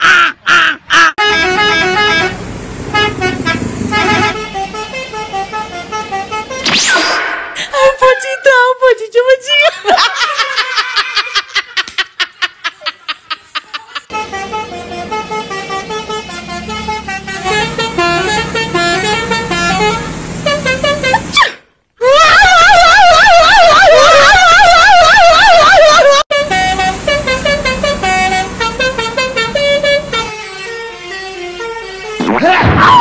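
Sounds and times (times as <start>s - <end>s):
bus horn playing a melody: 1.1s - 6.8s, 14.1s - 21.5s, 22.8s - 32.4s.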